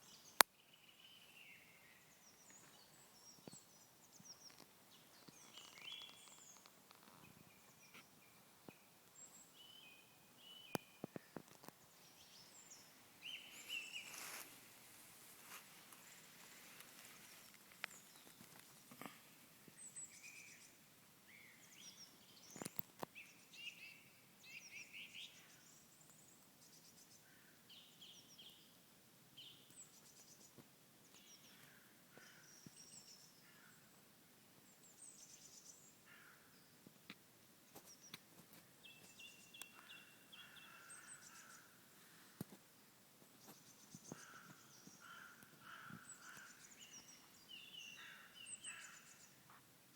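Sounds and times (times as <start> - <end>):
birds chirping: 0.0 - 26.4, 37.7 - 42.6, 43.3 - 49.6
steady background hiss: 0.0 - 49.9.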